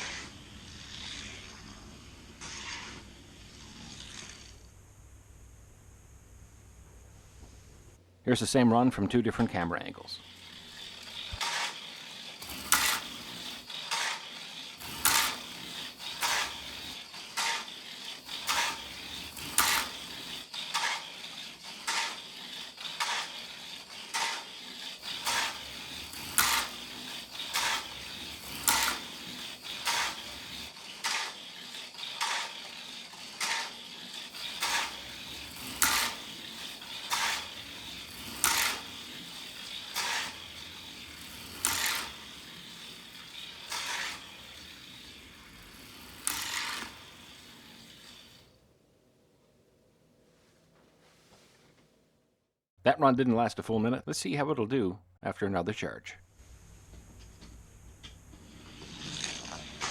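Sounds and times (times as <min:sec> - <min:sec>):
toy car electric motor whine: 0:00.0 - 0:04.8, 0:10.2 - 0:48.6, 0:57.4 - 0:59.9.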